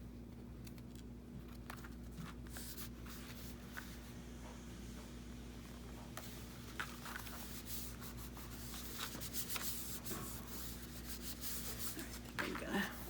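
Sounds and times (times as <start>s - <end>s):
paper rustling: 0.8s - 4.1s, 6.2s - 13.0s.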